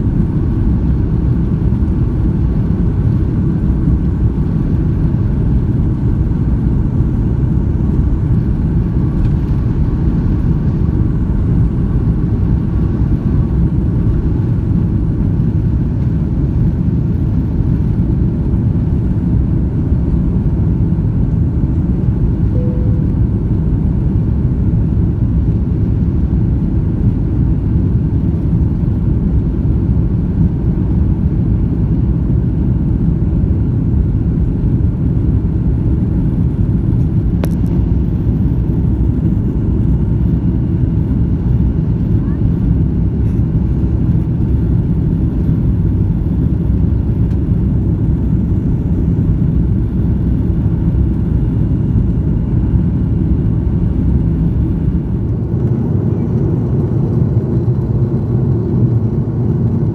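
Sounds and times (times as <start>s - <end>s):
airliner cabin engine rumble: 0.0s - 59.9s
short faint tone: 22.5s - 23.5s.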